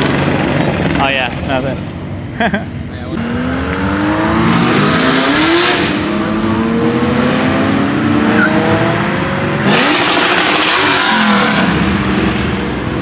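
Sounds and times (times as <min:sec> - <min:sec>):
car revving: 0:00.0 - 0:13.0
car engine accelerating: 0:02.8 - 0:13.0.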